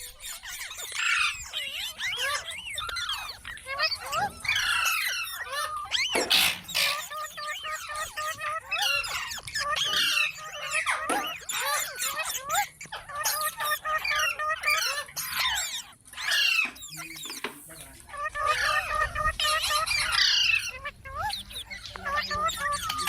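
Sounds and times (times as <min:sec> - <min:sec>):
parakeet chattering: 0:00.0 - 0:23.0
parakeet raspy squawk: 0:00.0 - 0:23.0.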